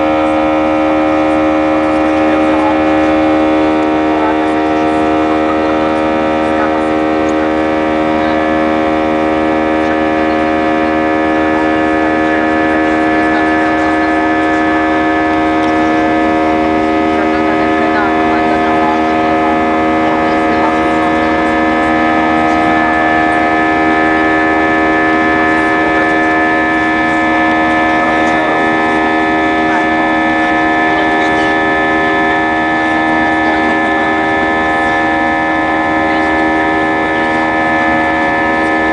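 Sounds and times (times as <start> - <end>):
jet engines drone in cabin: 0.0 - 38.9.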